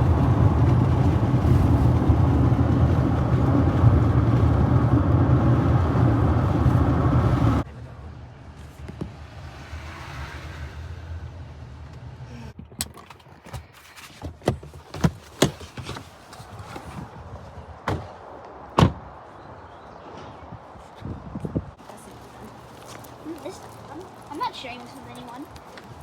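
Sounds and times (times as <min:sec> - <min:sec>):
car engine humming: 0:00.0 - 0:12.6
sharp knocks and clunks: 0:17.8 - 0:18.2, 0:18.8 - 0:19.1.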